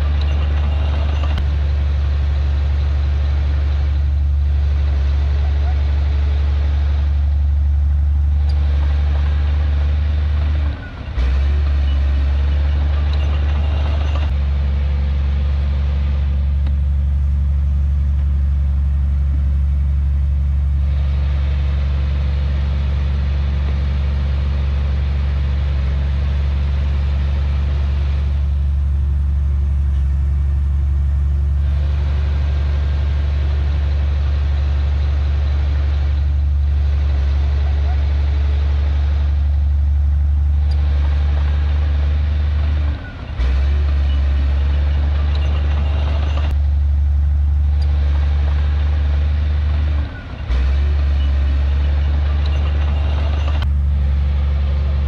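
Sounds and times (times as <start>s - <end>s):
rough bright mechanical noise: 0.0s - 18.9s, 25.8s - 46.7s, 47.4s - 55.0s
heavy diesel engine droning: 0.0s - 55.0s.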